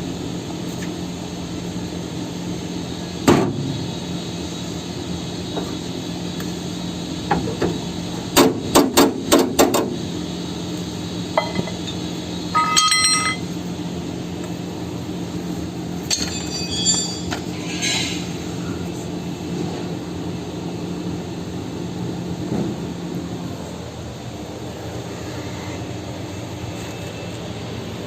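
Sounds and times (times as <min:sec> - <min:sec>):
machine hum: 0:10.0 - 0:17.6
steel tools clinking on metal: 0:11.4 - 0:12.0, 0:12.6 - 0:13.5, 0:16.1 - 0:18.2.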